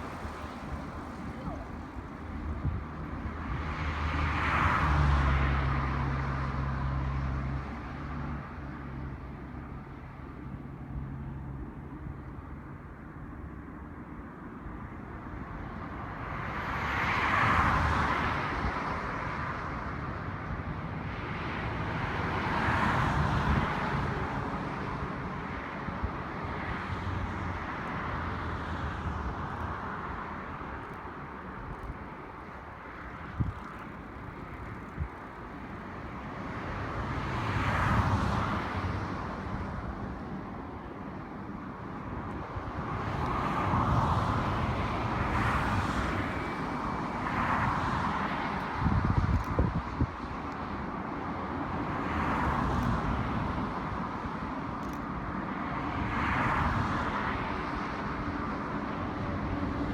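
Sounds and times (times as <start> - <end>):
outdoor background noise: 0.0 - 59.9.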